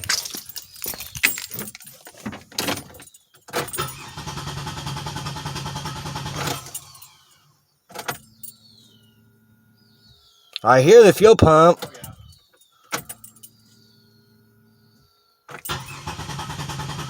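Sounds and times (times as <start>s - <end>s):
keys rattling: 0.0s - 4.1s, 6.5s - 7.4s, 11.8s - 13.8s
engine cranking without starting: 3.6s - 7.4s, 15.6s - 17.0s.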